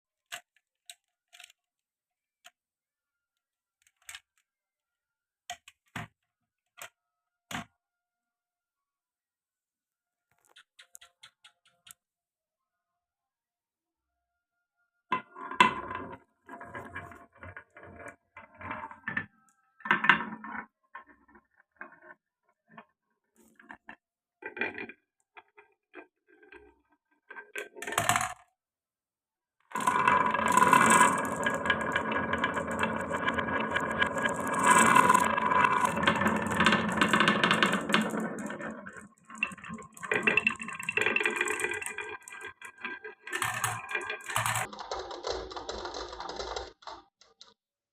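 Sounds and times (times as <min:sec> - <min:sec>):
marbles rattling along track: 0:27.6 - 0:28.4, 0:29.7 - 0:47.6
marbles clicking on wooden pieces: 0:29.7 - 0:47.1.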